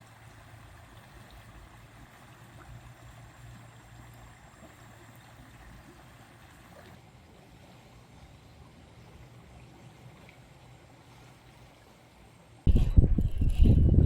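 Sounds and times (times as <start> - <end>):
flowing creek water: 0.0 - 12.7
low rumble: 12.7 - 14.0.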